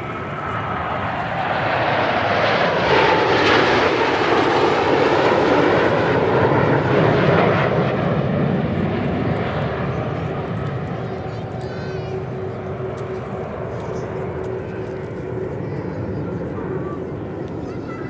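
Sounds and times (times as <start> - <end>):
jets passing by: 0.0 - 18.0.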